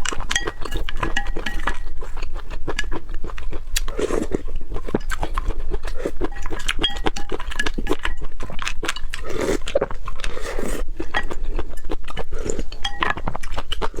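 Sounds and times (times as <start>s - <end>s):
utensils clinking on dishes: 0.0s - 1.9s, 6.3s - 8.3s, 11.1s - 13.6s
chewing with wet mouth noises: 0.0s - 14.0s.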